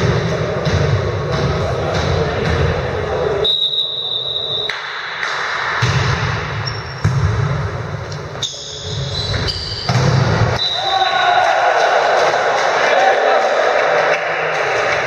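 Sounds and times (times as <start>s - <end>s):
sports hall background noise: 0.0s - 15.0s
referee's whistle: 3.4s - 4.8s, 10.6s - 11.1s.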